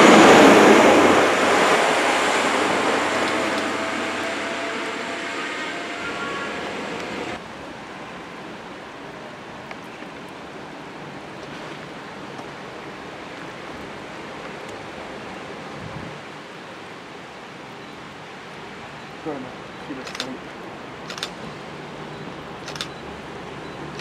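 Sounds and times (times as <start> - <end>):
diesel train engine running: 0.0 - 7.4
outdoor background hiss: 1.0 - 24.0.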